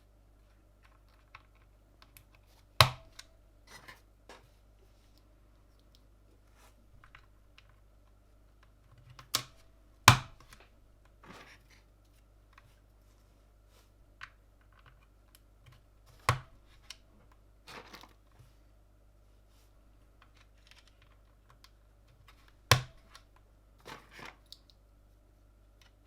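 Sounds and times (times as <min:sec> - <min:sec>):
plastic keyboard parts snapping: 0:00.8 - 0:03.3, 0:08.6 - 0:10.7, 0:14.2 - 0:17.0, 0:20.2 - 0:24.7.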